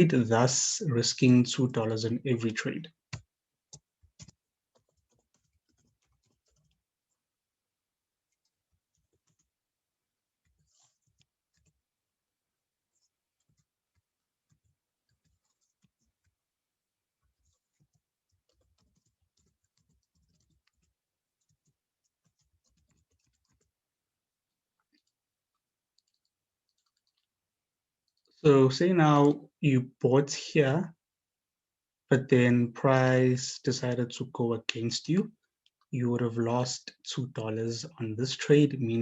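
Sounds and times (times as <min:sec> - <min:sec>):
keyboard and mouse clicks: 0:03.1 - 0:06.8, 0:25.9 - 0:27.3.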